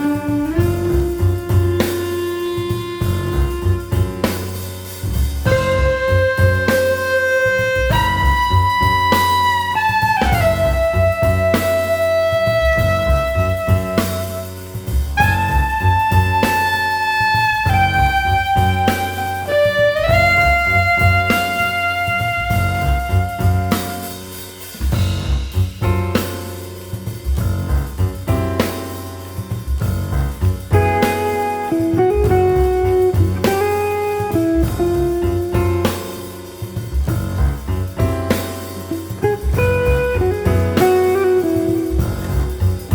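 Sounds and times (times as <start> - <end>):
drum kit with cymbals: 0.0 - 42.9
jazz instrumental: 0.0 - 42.9
held melody notes: 5.4 - 24.5, 30.7 - 36.8, 37.9 - 42.9.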